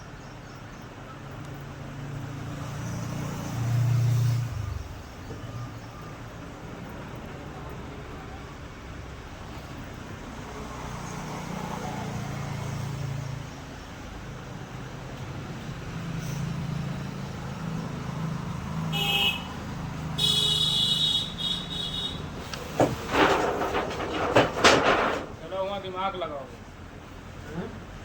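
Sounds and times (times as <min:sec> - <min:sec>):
passing traffic rumbling: 0:00.0 - 0:28.0
vehicle horn: 0:18.9 - 0:19.6, 0:20.2 - 0:22.3.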